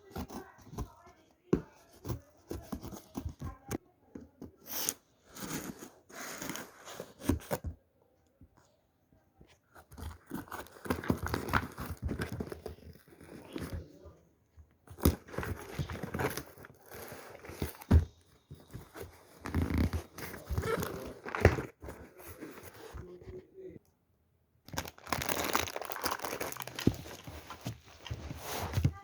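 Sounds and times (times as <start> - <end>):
packaging crinkling and tearing: 9.9 - 13.7, 24.7 - 29.0.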